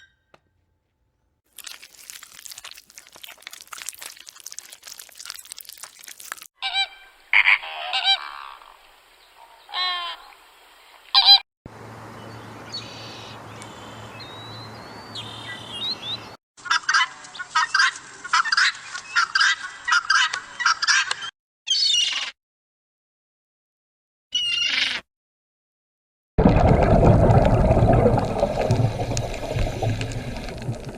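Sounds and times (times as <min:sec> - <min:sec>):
loud pitched bird calls: 0:12.2 - 0:16.4, 0:18.4 - 0:22.3, 0:24.4 - 0:25.0
rapid dense bird calls: 0:12.2 - 0:16.4.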